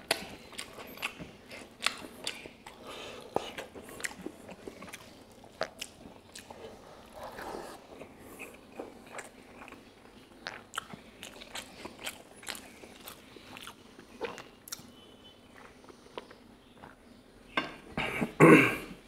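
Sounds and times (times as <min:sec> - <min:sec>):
person chewing food: 0:00.0 - 0:17.1.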